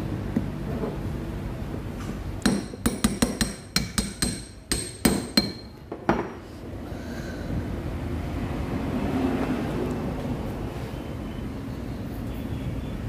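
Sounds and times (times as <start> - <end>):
metal tools tapping metal: 2.4 - 6.2.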